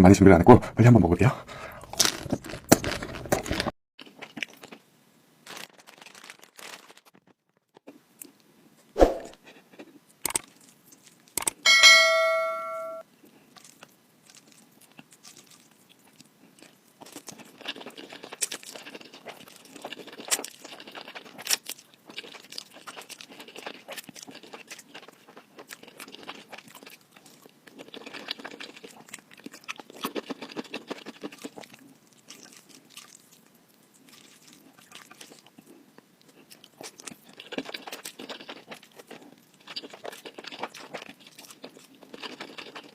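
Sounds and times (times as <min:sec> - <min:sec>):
chewing and crunching: 0:01.5 - 0:04.8, 0:05.4 - 0:08.5, 0:09.4 - 0:11.6, 0:13.1 - 0:42.9
short ringing tone: 0:11.7 - 0:13.0.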